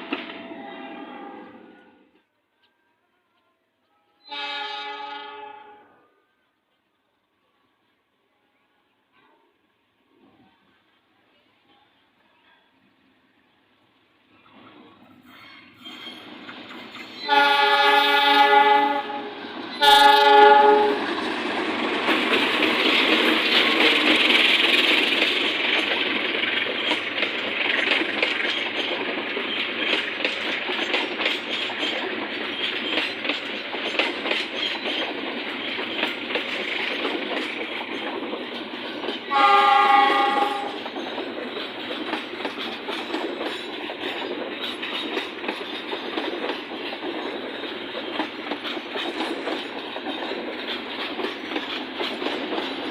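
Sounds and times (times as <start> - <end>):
train rumble: 0.0 - 2.8, 12.8 - 52.9
train horn blasts: 0.4 - 2.0, 4.0 - 6.2, 17.2 - 21.1, 39.3 - 40.8
wheel clatter over rail joints: 21.1 - 39.3, 39.9 - 52.9.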